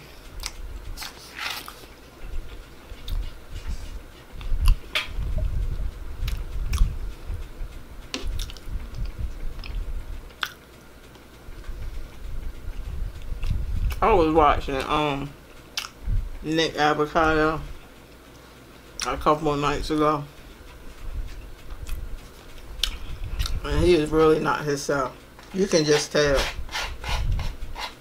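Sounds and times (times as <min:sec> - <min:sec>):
soft chewing: 0:00.3 - 0:04.8, 0:06.2 - 0:07.4, 0:08.2 - 0:11.9, 0:15.7 - 0:16.0, 0:20.5 - 0:23.6
sharp mouth clicks: 0:09.6 - 0:10.6, 0:15.8 - 0:16.0, 0:22.8 - 0:23.6.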